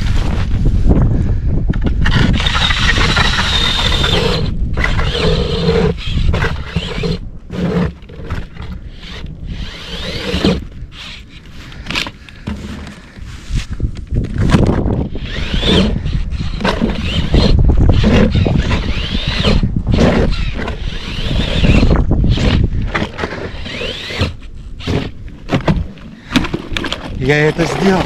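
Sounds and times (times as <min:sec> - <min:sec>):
wind buffeting microphone: 0:00.0 - 0:28.0
ice auger grinding through ice: 0:01.8 - 0:28.0.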